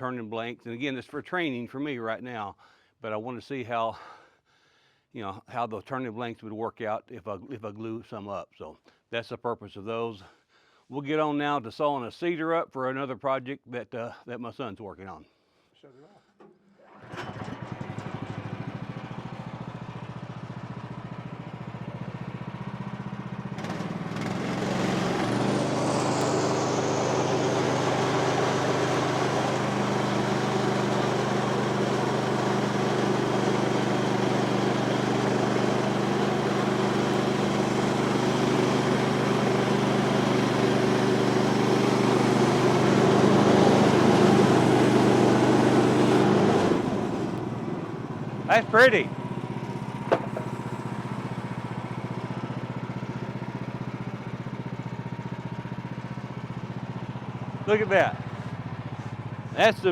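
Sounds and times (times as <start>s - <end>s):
sawmill engine running: 16.9s - 59.9s
band saw cutting through log: 23.6s - 47.2s, 50.0s - 50.9s.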